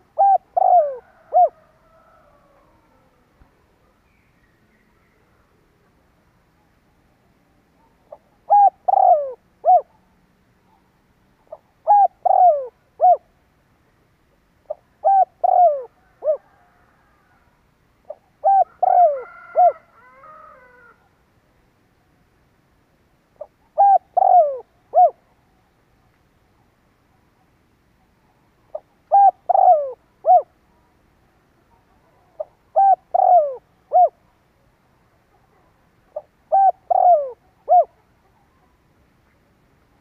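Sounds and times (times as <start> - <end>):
dove cooing: 0.0 - 3.3, 8.0 - 10.0, 11.4 - 13.3, 14.7 - 17.4, 18.1 - 21.0, 23.4 - 25.3, 28.7 - 30.6, 31.7 - 34.2, 35.5 - 38.7.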